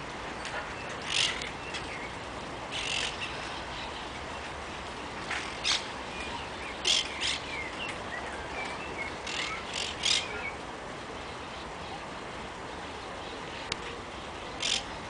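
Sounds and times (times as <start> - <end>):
parakeets screeching: 1.0 - 1.4, 14.6 - 14.8.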